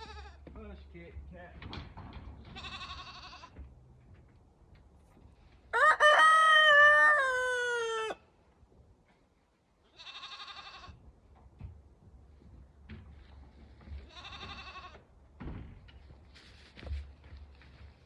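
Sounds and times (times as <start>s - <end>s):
goat bleating: 0.0s - 0.4s, 2.6s - 3.6s, 9.9s - 11.0s, 14.0s - 15.0s
rooster crowing: 5.7s - 8.2s.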